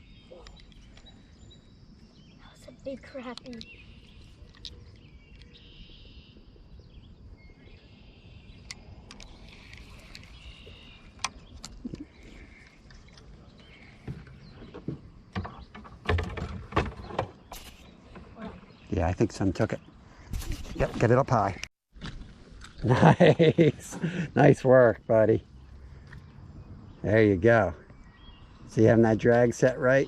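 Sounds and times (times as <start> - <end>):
outdoor ambience: 0.0 - 30.0
knocks and clicks in a canoe: 8.7 - 22.8
knocks against canoe hull: 14.0 - 17.4.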